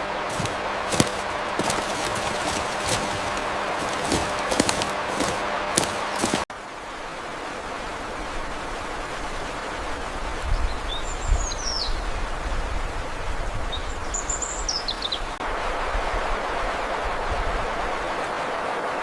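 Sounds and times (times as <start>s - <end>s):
rushing background noise: 0.0s - 6.5s
low bumps: 0.3s - 6.4s.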